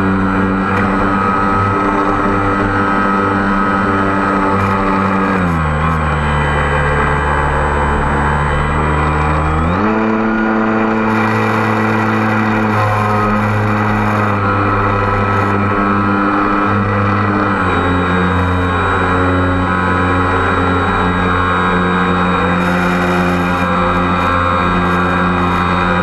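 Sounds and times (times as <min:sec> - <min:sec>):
drone motors humming: 0:00.0 - 0:26.0.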